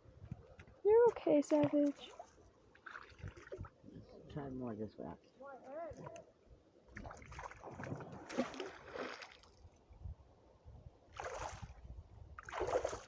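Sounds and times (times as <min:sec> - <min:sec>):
water splashing and sloshing: 0:00.2 - 0:04.4, 0:05.7 - 0:10.1, 0:11.1 - 0:13.0.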